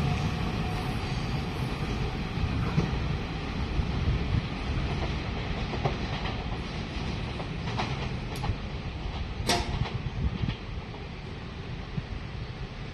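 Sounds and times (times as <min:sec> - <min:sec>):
train rumble: 0:00.0 - 0:12.9
train wheels clacking on rail joints: 0:04.8 - 0:11.0.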